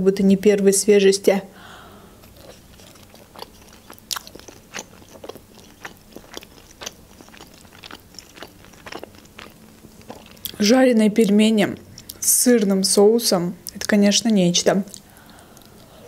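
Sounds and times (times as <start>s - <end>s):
person chewing with soft crunches: 2.2s - 12.3s, 14.8s - 16.0s.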